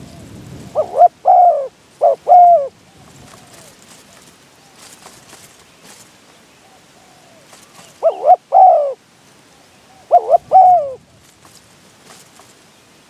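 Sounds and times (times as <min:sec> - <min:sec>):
dove cooing: 0:00.0 - 0:05.1, 0:06.6 - 0:11.0.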